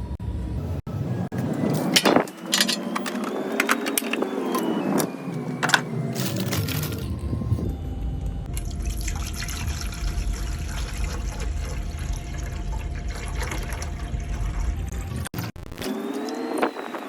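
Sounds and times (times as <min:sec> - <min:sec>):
low pump hum: 0:05.5 - 0:15.3
water trickling and dripping: 0:08.5 - 0:14.9.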